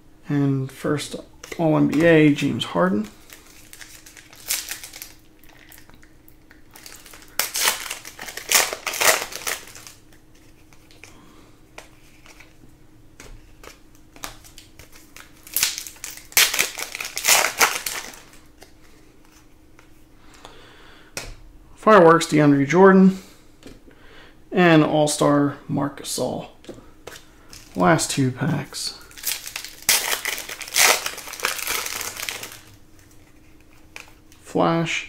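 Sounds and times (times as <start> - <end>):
foil wrappers crinkling: 1.4 - 11.2, 13.4 - 19.5, 27.1 - 34.3.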